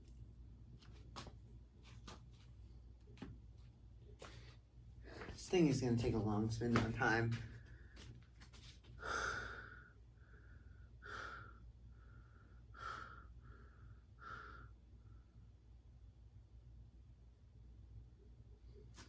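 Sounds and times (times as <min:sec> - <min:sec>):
faint low hum: 0:00.0 - 0:19.0
person breathing close: 0:09.0 - 0:14.8.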